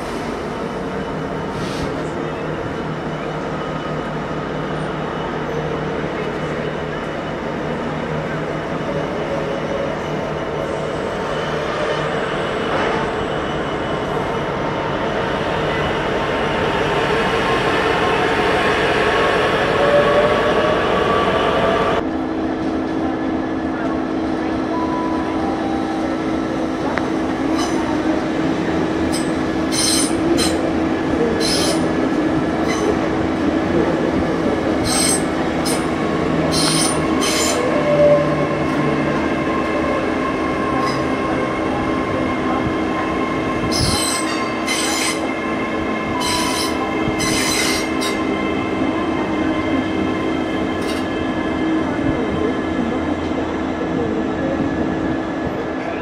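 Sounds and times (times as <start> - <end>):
train passing with hum: 0.0 - 56.0
high-pitched wheel squeals: 46.1 - 48.2.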